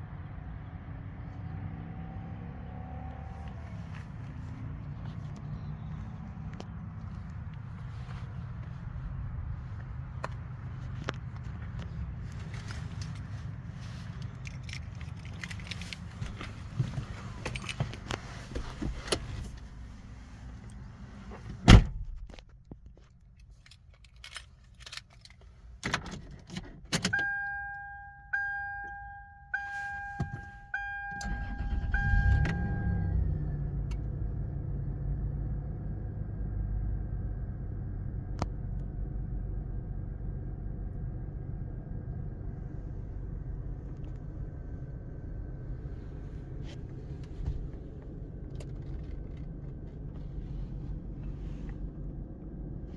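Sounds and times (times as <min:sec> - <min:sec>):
keys clicking and rattling: 0:14.0 - 0:16.6, 0:23.2 - 0:25.5
car door shutting: 0:21.2 - 0:22.4, 0:29.6 - 0:33.0, 0:46.6 - 0:49.8
warning chime: 0:27.2 - 0:33.3
engine starting and idling: 0:30.4 - 0:34.6.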